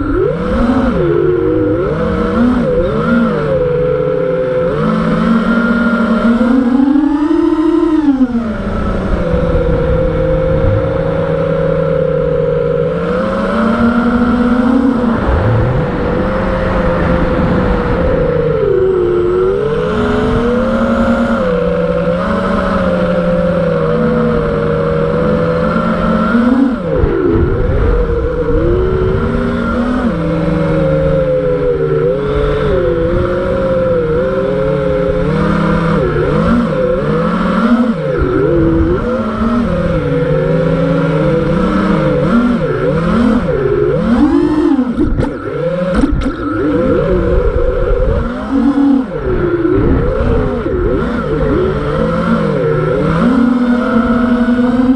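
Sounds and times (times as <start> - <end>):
quadcopter motors whining: 0.0 - 54.9
rushing air: 14.4 - 20.2.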